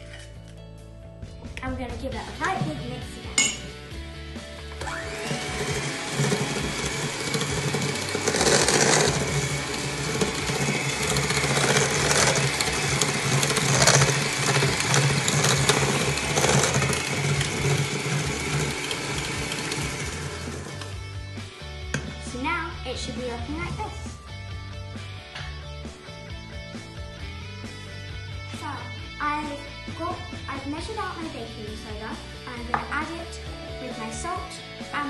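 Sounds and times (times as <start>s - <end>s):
electric hand mixer running: 4.6s - 21.1s.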